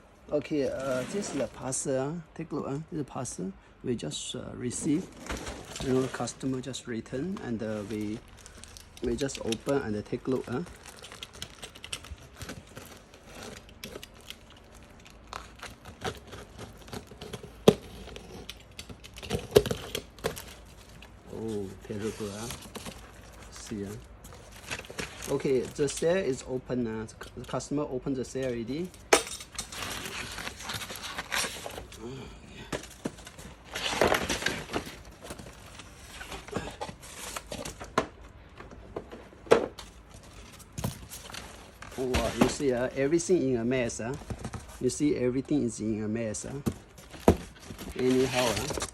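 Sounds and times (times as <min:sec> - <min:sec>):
parcel rustling: 0:00.6 - 0:01.8, 0:04.6 - 0:26.5, 0:28.4 - 0:48.9
packaging crinkling: 0:07.2 - 0:26.0.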